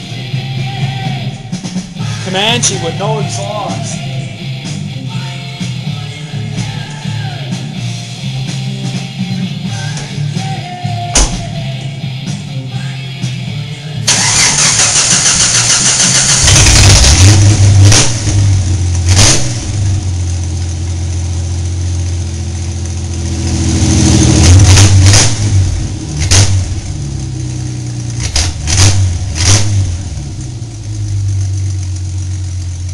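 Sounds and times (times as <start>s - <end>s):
loud open engine revving: 14.0s - 32.9s
engine starter cranking: 14.1s - 18.4s.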